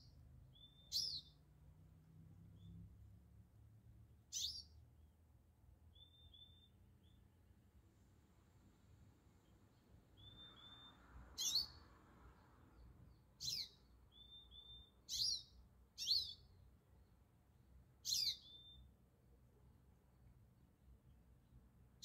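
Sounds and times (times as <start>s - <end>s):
soft whistled bird notes: 0.0s - 1.4s, 4.3s - 4.8s, 5.9s - 7.3s, 9.4s - 11.9s, 13.1s - 16.6s, 18.0s - 18.9s
songbird sharp downward calls: 0.0s - 1.4s, 4.3s - 4.8s, 5.9s - 7.2s, 10.2s - 11.8s, 13.4s - 16.6s, 18.0s - 18.9s.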